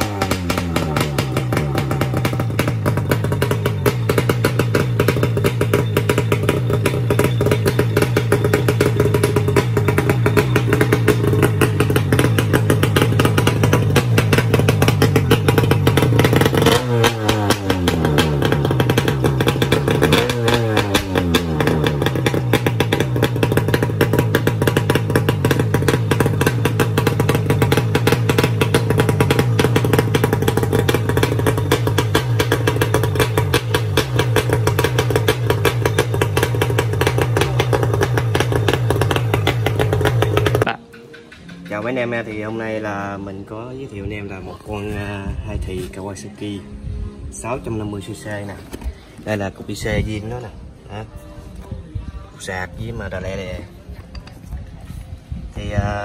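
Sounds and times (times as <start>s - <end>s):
two-stroke engine running: 0.0s - 43.2s.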